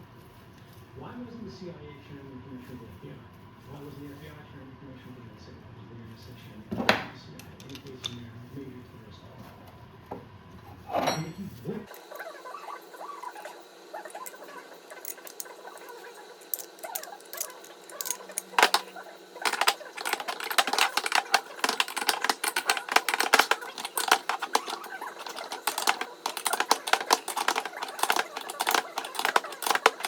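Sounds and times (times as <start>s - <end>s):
hand tools clicking and clinking: 11.9s - 30.0s.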